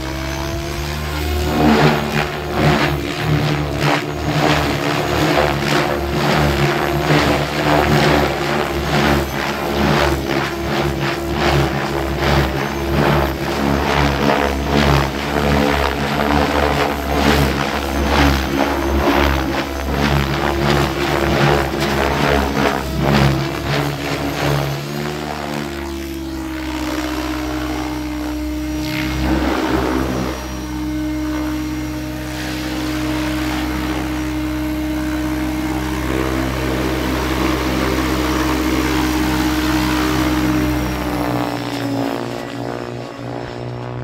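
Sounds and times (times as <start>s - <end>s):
rc helicopter rotor whooshing: 0.0s - 44.0s.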